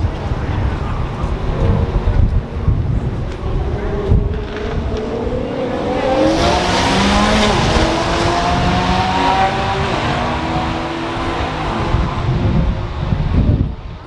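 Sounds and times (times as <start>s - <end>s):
car engine accelerating: 1.2s - 13.2s.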